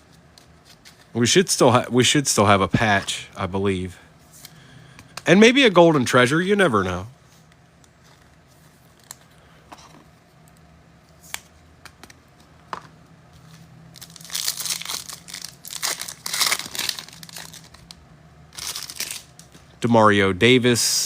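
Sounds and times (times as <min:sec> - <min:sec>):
foil wrapper crinkling and tearing: 0:13.9 - 0:19.4.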